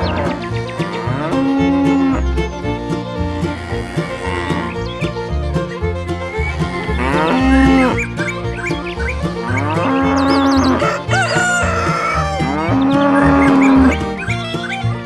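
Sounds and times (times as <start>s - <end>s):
cattle mooing: 0.0s - 2.3s, 3.3s - 4.8s, 6.2s - 14.4s
upbeat country music: 0.0s - 15.0s.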